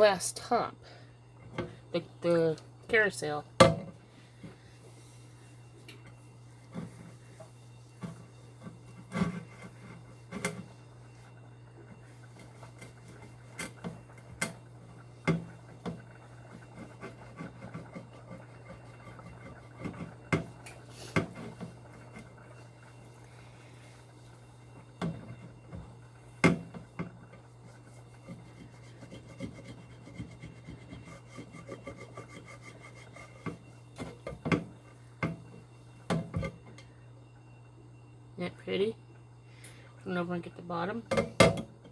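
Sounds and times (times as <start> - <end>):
glass being scrubbed: 28.2 - 33.7.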